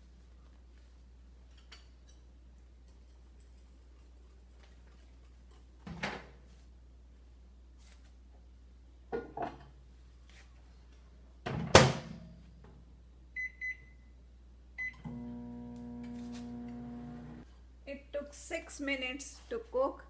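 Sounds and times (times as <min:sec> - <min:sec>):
microwave oven humming: 0:14.8 - 0:17.4.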